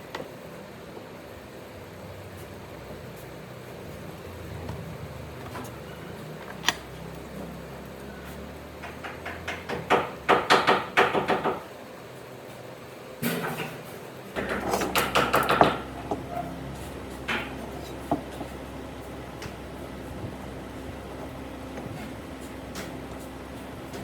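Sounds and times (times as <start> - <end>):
sharp knocks: 8.8 - 11.6, 14.4 - 16.2.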